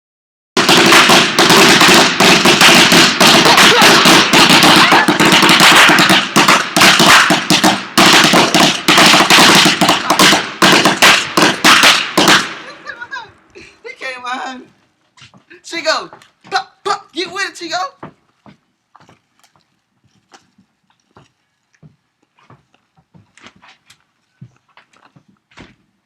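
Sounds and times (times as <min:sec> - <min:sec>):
firecrackers popping: 0:00.6 - 0:13.6.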